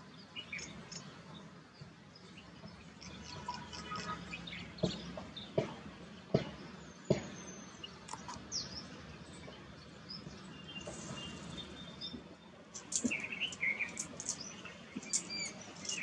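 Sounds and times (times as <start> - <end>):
small birds chirping: 0.0 - 16.0
sharp knocks: 4.8 - 7.4.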